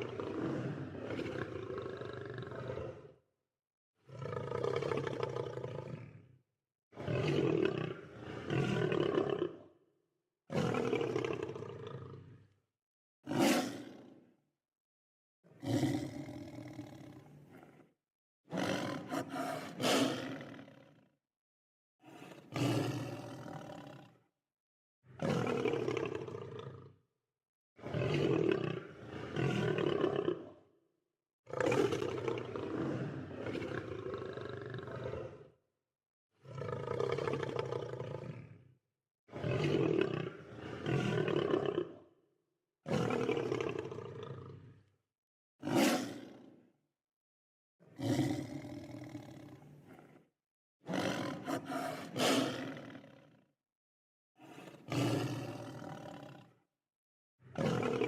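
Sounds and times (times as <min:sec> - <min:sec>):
lion roaring and growling: 0:50.9 - 0:53.1, 0:54.4 - 0:56.4.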